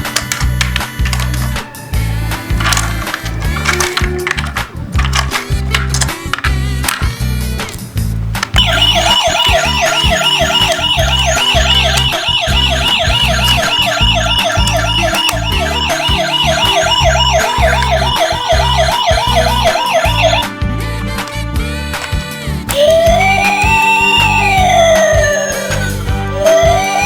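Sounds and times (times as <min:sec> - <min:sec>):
background music with steady beat: 0:00.0 - 0:27.0
warbling siren: 0:08.6 - 0:20.5, 0:22.7 - 0:27.0.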